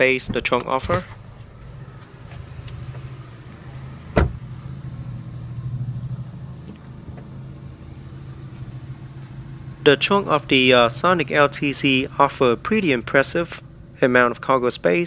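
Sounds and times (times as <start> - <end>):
car engine idling: 0.0 - 15.0
sharp thump: 4.1 - 4.4.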